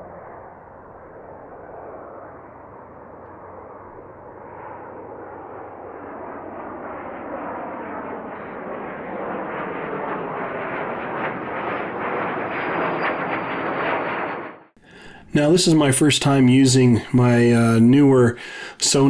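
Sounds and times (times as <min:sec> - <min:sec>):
airplane engine noise: 0:00.0 - 0:19.0.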